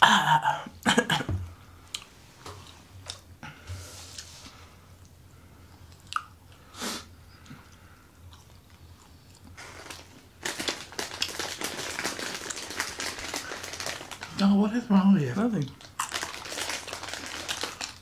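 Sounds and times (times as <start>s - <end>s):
person chewing crunchy food: 5.7s - 6.7s, 7.3s - 14.3s, 15.7s - 18.0s.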